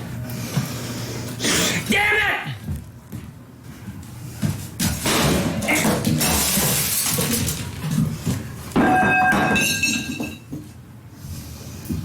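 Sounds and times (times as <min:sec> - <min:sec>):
microwave oven being smashed: 0:05.0 - 0:07.7
glass shattering: 0:08.8 - 0:10.4.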